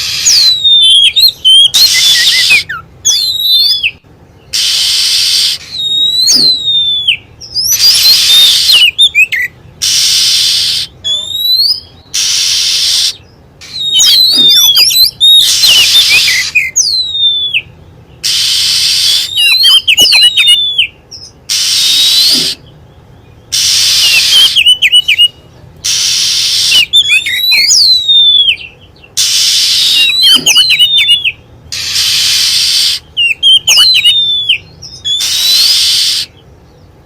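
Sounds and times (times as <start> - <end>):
bird harsh hissing rasps: 0.0 - 0.4, 4.5 - 6.5, 7.7 - 8.9, 9.8 - 11.0, 12.1 - 14.6, 15.3 - 16.6, 18.2 - 19.4, 21.5 - 22.7, 23.5 - 24.6, 25.8 - 26.9, 29.2 - 30.6, 31.7 - 33.1, 35.1 - 36.4
bird whistled phrases: 0.0 - 22.8, 23.5 - 36.4.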